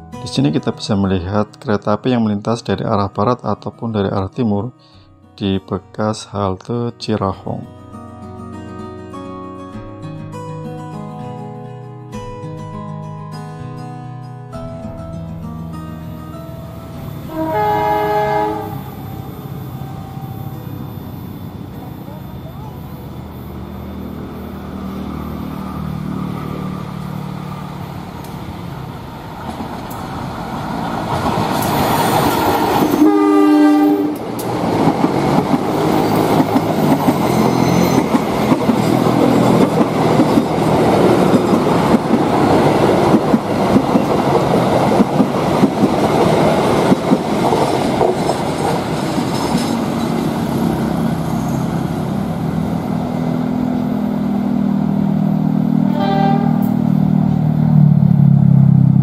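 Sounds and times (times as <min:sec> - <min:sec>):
locomotive engine droning: 0:16.0 - 0:59.0
train horn: 0:17.3 - 0:20.9, 0:32.8 - 0:34.3, 0:55.8 - 0:57.0
coaches clattering over rail joints: 0:34.3 - 0:51.7.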